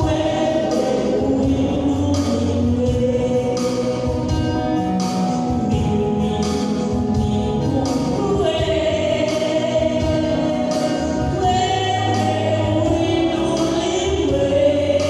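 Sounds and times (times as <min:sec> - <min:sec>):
choir singing gospel: 0:00.0 - 0:15.0
instrumental backing: 0:00.0 - 0:15.0.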